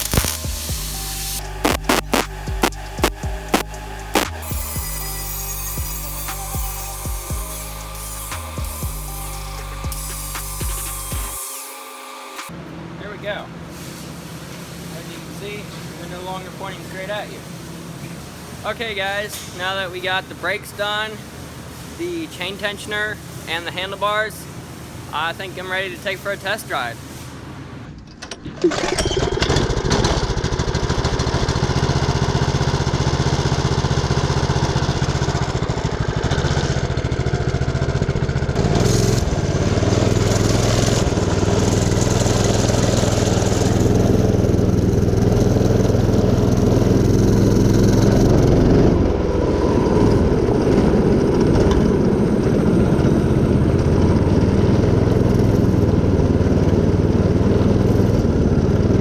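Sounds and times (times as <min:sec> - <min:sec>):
small gas engine revving: 0:35.0 - 0:59.0.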